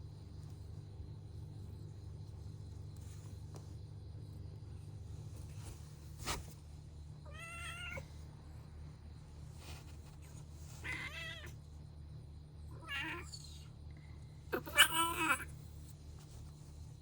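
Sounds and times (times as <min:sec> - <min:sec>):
cat meowing: 0:07.3 - 0:08.0, 0:10.8 - 0:11.6, 0:12.8 - 0:13.6, 0:14.6 - 0:15.5.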